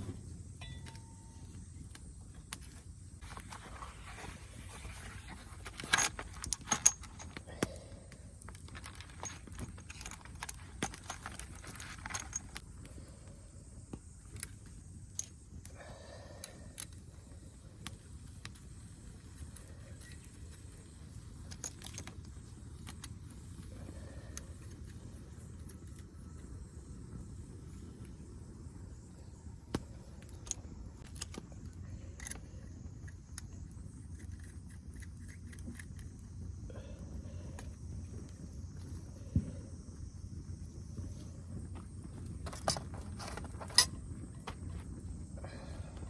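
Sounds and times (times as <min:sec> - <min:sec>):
metallic clinking and rattling: 0:04.9 - 0:07.5, 0:08.5 - 0:12.7.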